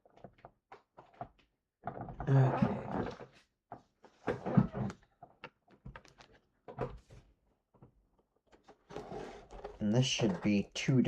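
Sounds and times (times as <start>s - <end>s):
toys and packaging being handled: 3.0s - 11.0s.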